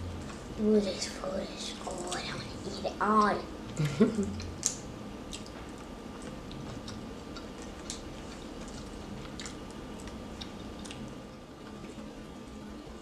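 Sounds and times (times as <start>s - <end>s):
faint steady hum: 0.0s - 13.0s
chewing and lip-smacking: 4.3s - 12.0s.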